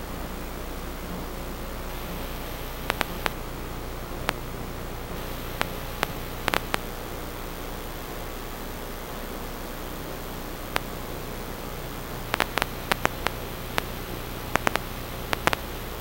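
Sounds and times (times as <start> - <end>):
electronic static hiss: 0.0 - 16.0
sharp clicks: 1.9 - 3.4, 5.2 - 6.8, 12.3 - 15.7.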